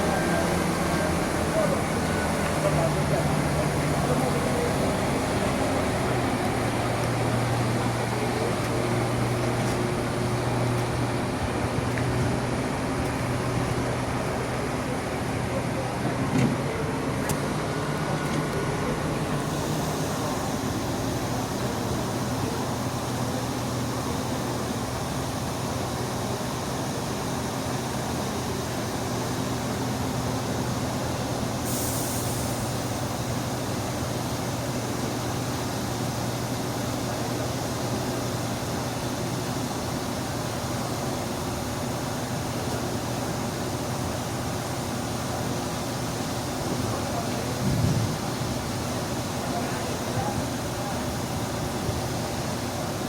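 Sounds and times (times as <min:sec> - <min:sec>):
diesel engine running: 0:00.0 - 0:53.0
air hiss: 0:19.2 - 0:25.6, 0:26.7 - 0:53.0.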